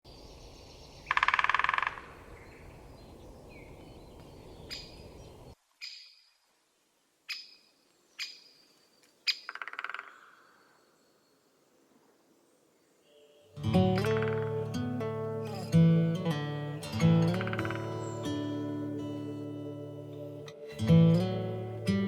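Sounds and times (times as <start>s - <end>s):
woodpecker calls: 1.0s - 2.7s, 7.3s - 11.0s, 13.8s - 15.6s, 16.9s - 22.0s
woodpecker fast rattle: 1.1s - 2.2s, 9.3s - 10.4s, 14.2s - 14.5s.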